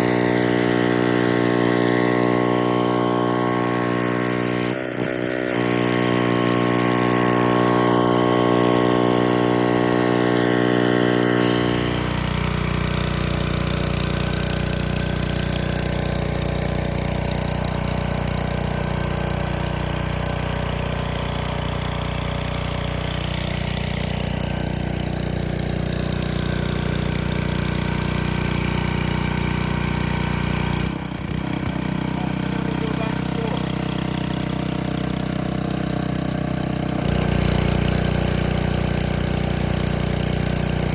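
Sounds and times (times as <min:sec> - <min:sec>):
pressure washer engine running: 0:00.0 - 0:40.9
water spray hiss: 0:16.5 - 0:40.9.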